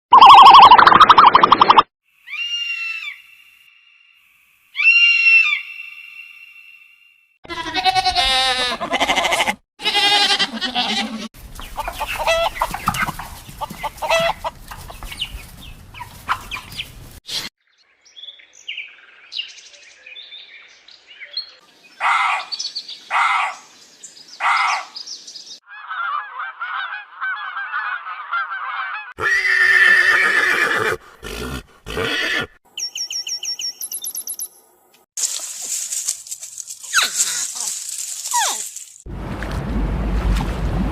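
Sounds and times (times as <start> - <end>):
fowl honking and clucking: 8.7 - 15.3, 15.9 - 16.9, 25.7 - 29.2.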